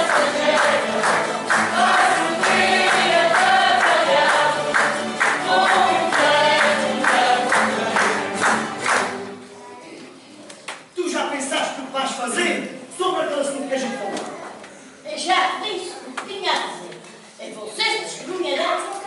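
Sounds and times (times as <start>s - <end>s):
choir singing: 0.0s - 9.4s
instrumental accompaniment: 0.0s - 9.6s.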